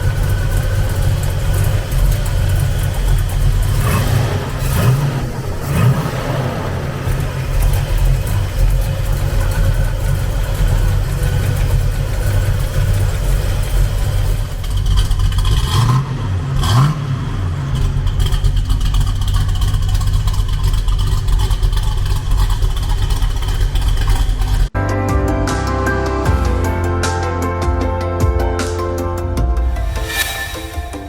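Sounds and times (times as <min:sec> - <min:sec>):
car engine through exhaust: 0:00.0 - 0:24.8.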